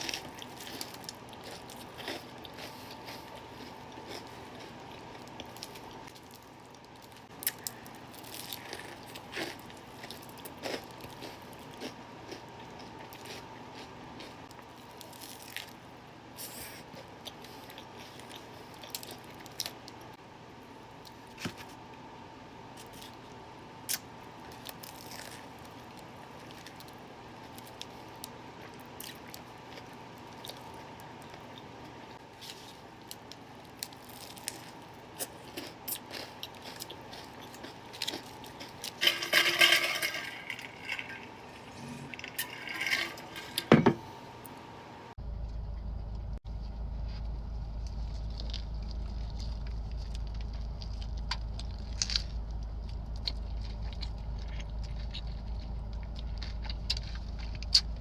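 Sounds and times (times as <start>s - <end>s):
wet chewing and lip-smacking: 48.0s - 58.0s.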